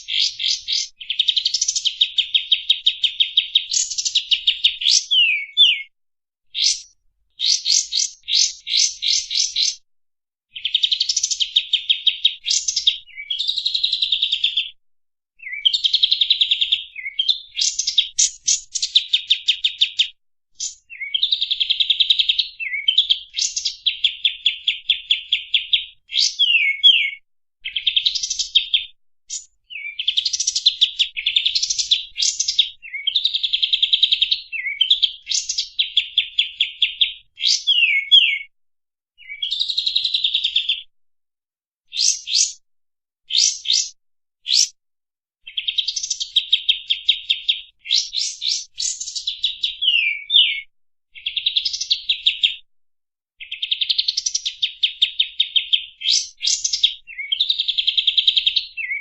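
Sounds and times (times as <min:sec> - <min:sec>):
bird singing trills: 0:00.0 - 0:05.9, 0:06.6 - 0:09.8, 0:20.6 - 0:38.5, 0:43.3 - 0:44.7, 0:45.5 - 0:50.6, 0:58.5 - 0:59.0
bird whistled notes: 0:04.8 - 0:05.9, 0:26.2 - 0:27.2, 0:37.4 - 0:38.5, 0:49.8 - 0:50.6.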